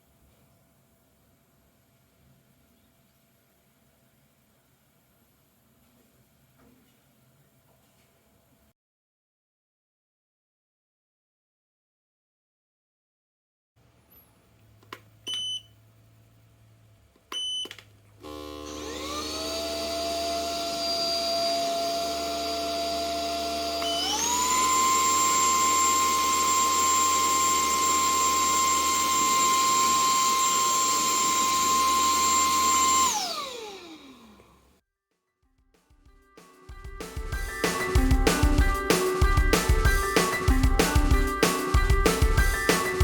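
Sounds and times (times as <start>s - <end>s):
vacuum cleaner motor whine: 17.4s - 34.8s.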